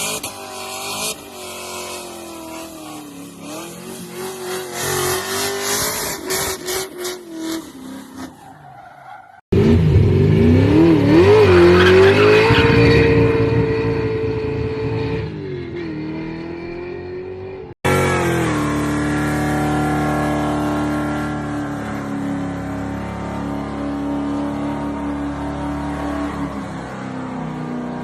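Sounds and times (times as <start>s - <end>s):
car engine revving: 9.5s - 28.0s.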